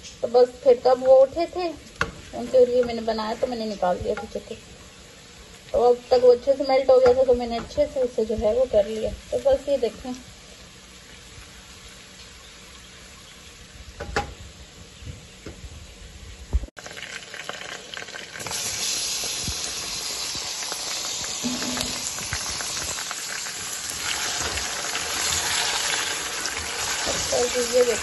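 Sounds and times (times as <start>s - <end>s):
onion sizzling in hot oil: 0.0s - 28.0s
chicken frying in oil: 16.5s - 28.0s.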